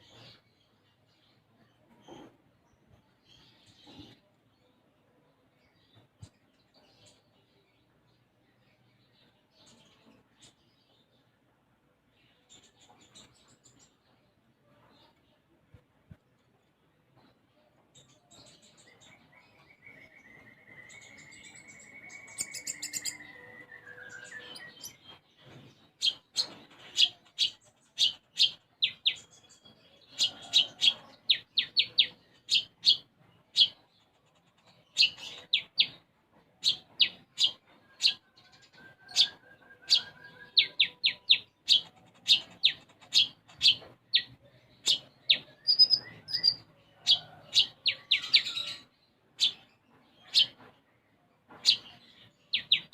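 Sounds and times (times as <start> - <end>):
sunbird singing: 18.2 - 25.2, 36.6 - 50.5.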